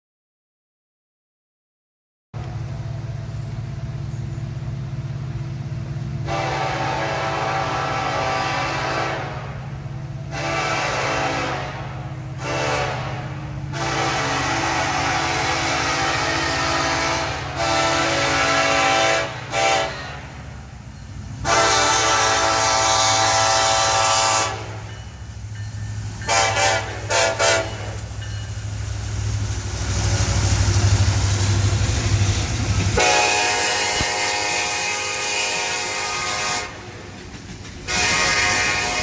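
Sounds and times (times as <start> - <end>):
diesel engine rumble: 2.4 - 33.2
locomotive air horn blasts: 6.2 - 20.5, 21.4 - 24.9, 26.3 - 28.1, 33.0 - 37.1, 37.9 - 39.0.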